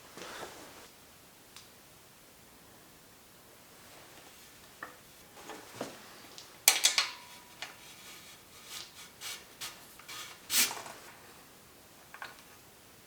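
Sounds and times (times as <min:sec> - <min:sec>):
metal parts clinking: 0:06.7 - 0:08.2
metal clatter: 0:06.7 - 0:10.4.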